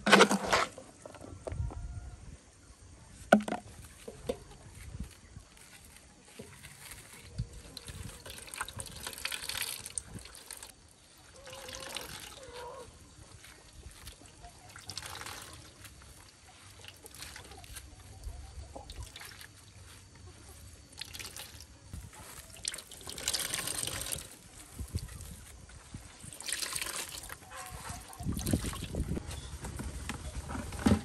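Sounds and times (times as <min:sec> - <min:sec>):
water trickling and splashing: 0:06.3 - 0:29.2.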